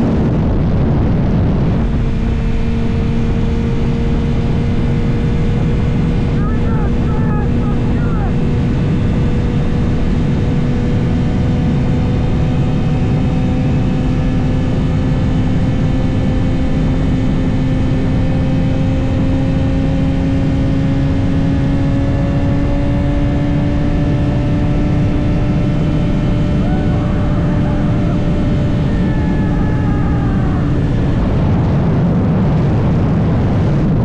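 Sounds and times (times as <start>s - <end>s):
wind rushing: 0.0s - 7.9s, 24.7s - 34.0s
motorcycle engine cruising: 0.0s - 34.0s.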